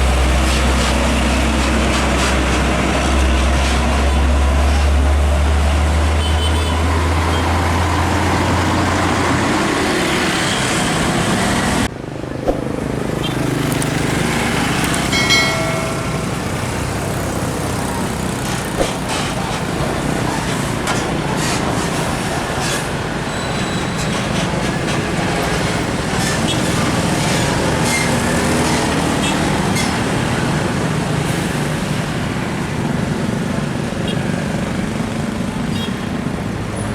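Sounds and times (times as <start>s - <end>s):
heavy trucks driving past: 0.0s - 36.9s.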